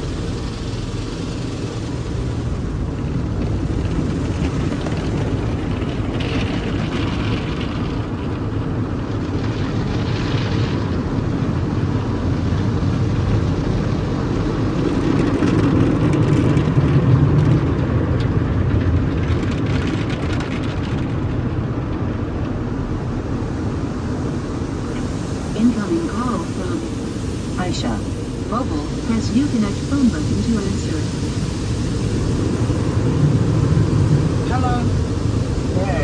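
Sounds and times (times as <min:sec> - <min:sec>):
car wash machine noise: 0:00.0 - 0:36.0
hissing: 0:22.5 - 0:36.0
water spray: 0:23.0 - 0:36.0.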